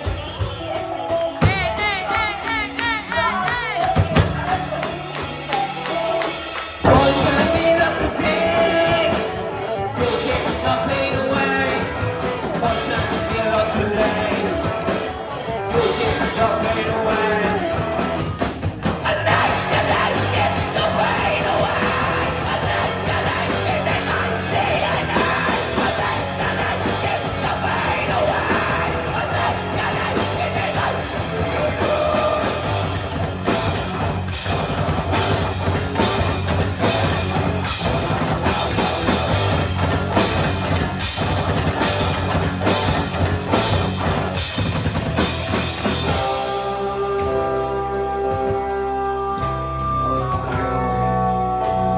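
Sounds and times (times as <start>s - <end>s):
shouted vocals: 0.0s - 33.1s
distorted guitars: 0.0s - 51.9s
driving drums: 0.0s - 51.9s
live rock band playing: 0.0s - 51.9s.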